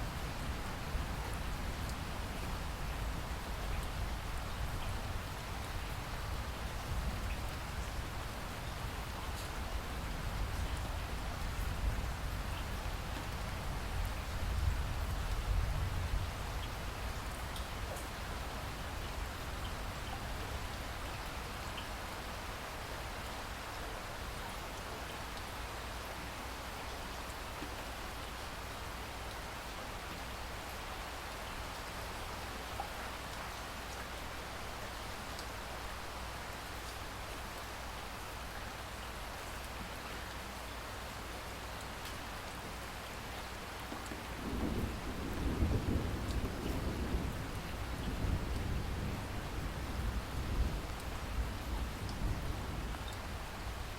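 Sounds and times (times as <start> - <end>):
low rumble of thunder: 0.0 - 20.8, 44.2 - 53.9
rain falling: 0.0 - 53.9.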